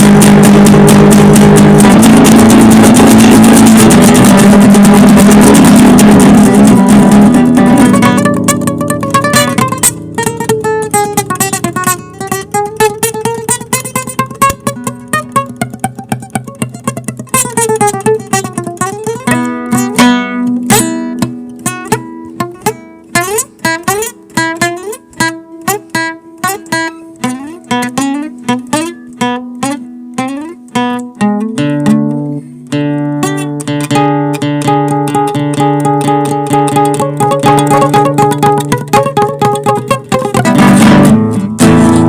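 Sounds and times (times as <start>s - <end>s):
acoustic guitar music: 0.0s - 42.0s.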